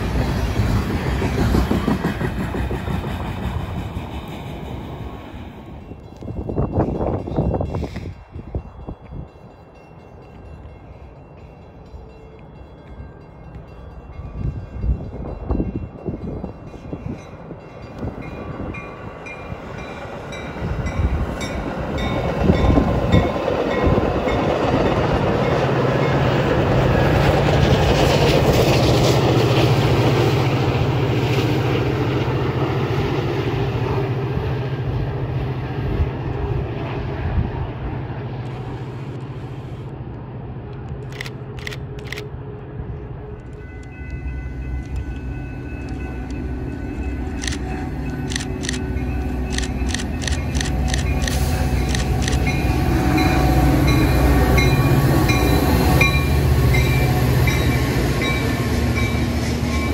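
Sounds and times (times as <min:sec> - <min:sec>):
passing train rumble: 0:00.0 - 0:59.9
sharp clicks: 0:49.5 - 0:52.5.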